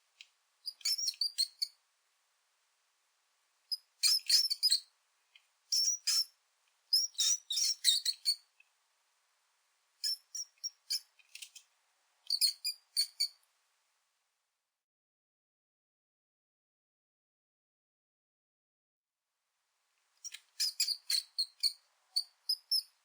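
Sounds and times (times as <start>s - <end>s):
mouse squeaks: 0.6s - 1.8s, 3.7s - 4.9s, 5.7s - 8.5s, 10.0s - 11.5s, 12.3s - 13.4s, 20.2s - 23.0s.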